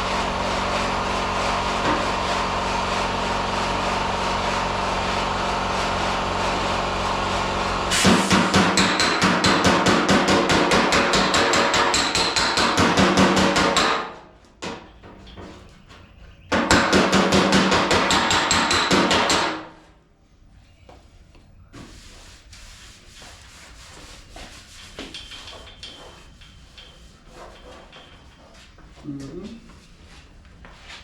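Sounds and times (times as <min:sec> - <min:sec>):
rapid hammering on metal panel: 0:08.0 - 0:14.9, 0:16.5 - 0:19.8.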